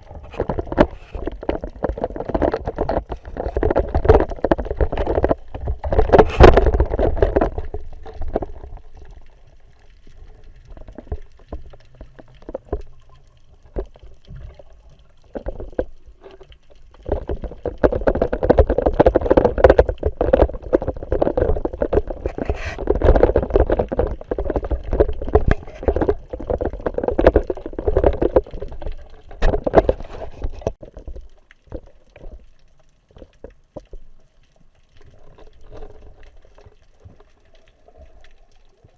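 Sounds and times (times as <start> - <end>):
water sloshing against camera housing: 0.0 - 8.6, 17.0 - 30.8.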